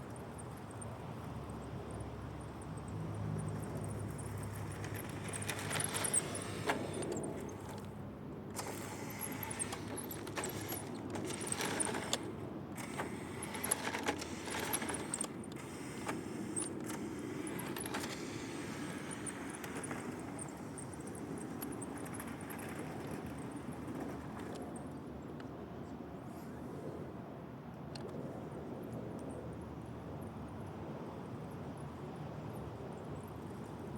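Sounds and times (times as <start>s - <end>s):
light rattles and jangling: 0.0s - 8.0s.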